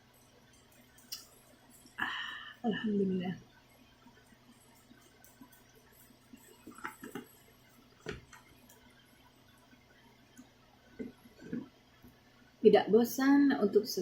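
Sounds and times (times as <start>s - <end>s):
small objects clicking and knocking: 0.2s - 2.0s, 4.2s - 8.9s.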